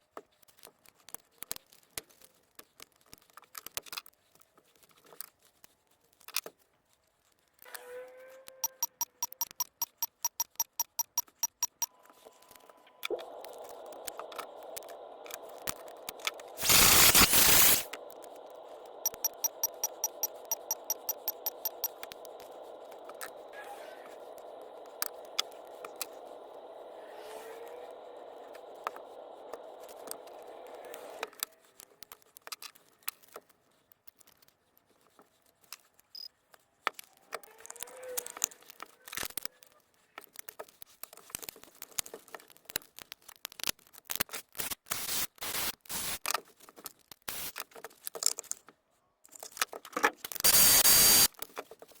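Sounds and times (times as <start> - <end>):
clicks and scrapes of handling: 0.1 - 7.8, 31.2 - 44.7, 46.2 - 50.5
steady noise: 8.7 - 31.8, 50.4 - 51.3
loud burst of noise: 11.7 - 31.5, 50.4 - 51.3.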